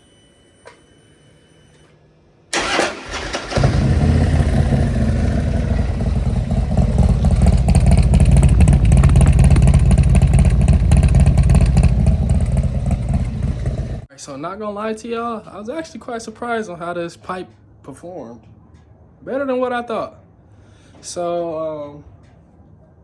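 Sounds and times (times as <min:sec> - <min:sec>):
motorcycle starter cranking: 0:02.5 - 0:14.1
motorcycle engine deep exhaust rumble: 0:03.6 - 0:14.1.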